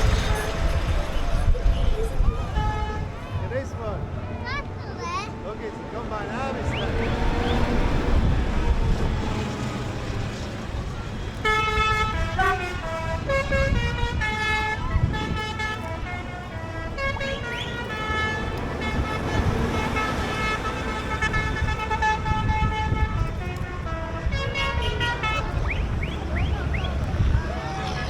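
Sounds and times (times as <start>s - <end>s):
tractor and truck engines rumbling: 0.0s - 28.0s
horn-like notes tune: 11.4s - 27.1s.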